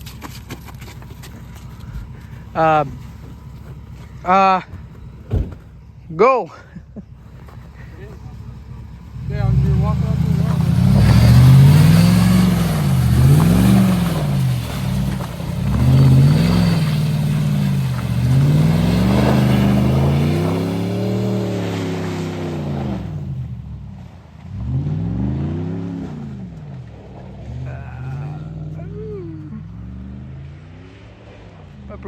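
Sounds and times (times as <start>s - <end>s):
vehicle engine revving: 0.0s - 32.0s.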